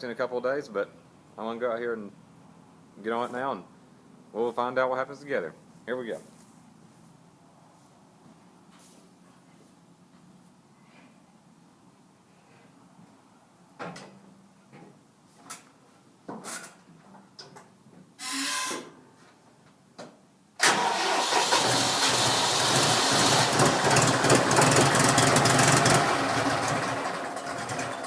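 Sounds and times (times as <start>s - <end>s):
diesel tractor engine starting: 20.6s - 28.0s.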